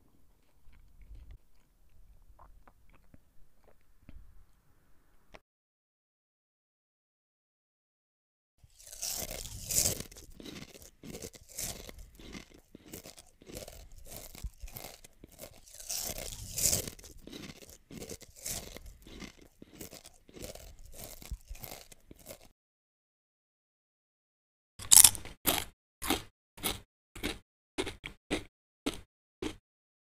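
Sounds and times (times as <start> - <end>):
crunchy food being chewed: 0.4 - 4.3, 8.6 - 22.6, 24.8 - 29.6.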